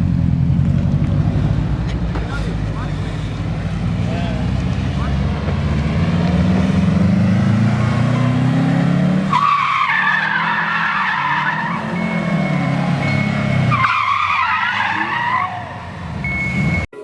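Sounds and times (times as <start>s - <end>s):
car engine low note: 0.0s - 14.1s
car tires squealing: 7.5s - 16.8s.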